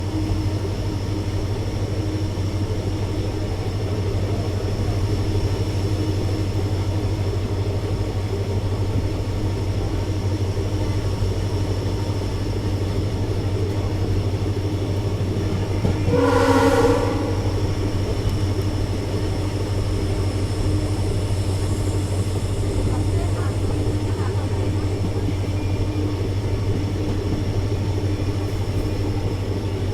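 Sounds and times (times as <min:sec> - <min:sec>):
diesel locomotive engine rumbling: 0:00.0 - 0:29.9
loud pitched tone: 0:16.0 - 0:17.9.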